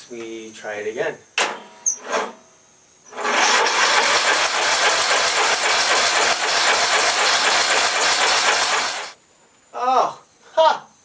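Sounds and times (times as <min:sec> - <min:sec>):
lawn mower engine cranking: 0:03.1 - 0:09.2.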